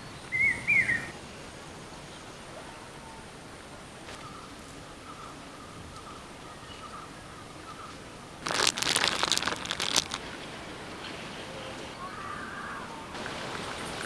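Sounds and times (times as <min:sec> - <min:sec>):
loud crackling and crinkling: 0:08.4 - 0:10.4, 0:13.2 - 0:14.0.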